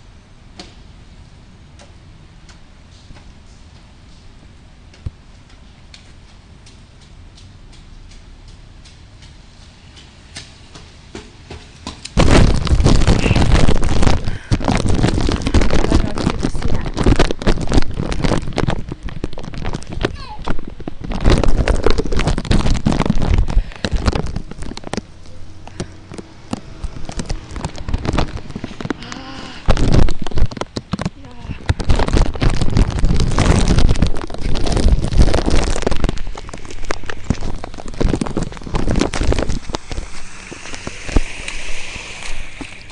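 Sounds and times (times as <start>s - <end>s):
wind and rain hitting microphone: 0.0s - 42.9s
raindrops ticking: 4.8s - 11.0s, 11.8s - 42.9s
low rumble: 32.2s - 42.9s.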